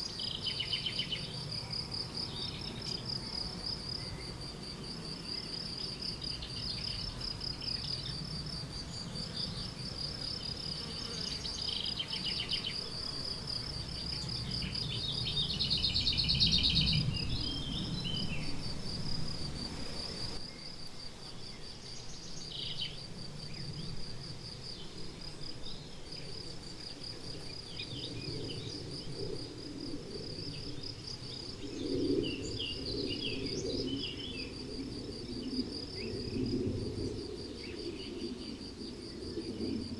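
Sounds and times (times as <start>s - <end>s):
songbirds calling: 0.0s - 18.7s.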